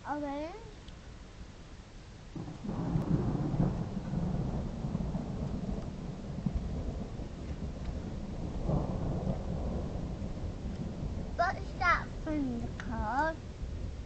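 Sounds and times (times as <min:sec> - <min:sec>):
thunder rumbling: 0:02.3 - 0:14.0.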